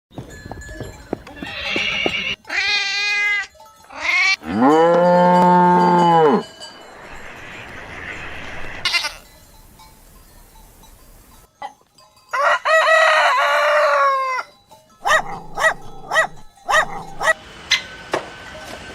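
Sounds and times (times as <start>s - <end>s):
cow mooing: 4.2s - 6.5s, 15.0s - 17.4s.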